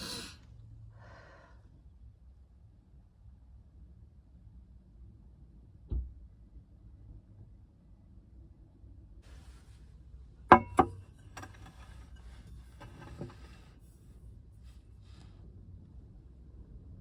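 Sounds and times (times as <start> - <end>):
sharp knocks: 10.5 - 11.0.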